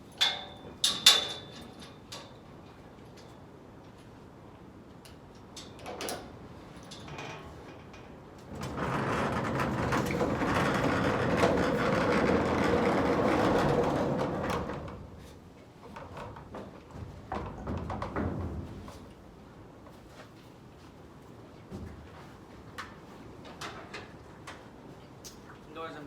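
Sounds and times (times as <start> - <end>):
sliding barn door rumbling: 6.2 - 19.4.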